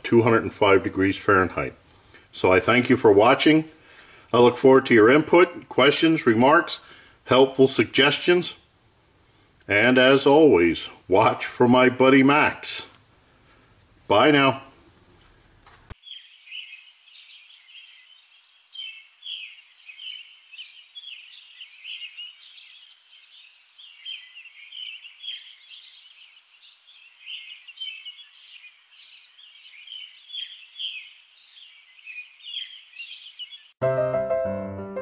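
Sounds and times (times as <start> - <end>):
birds chirping: 15.9 - 33.8.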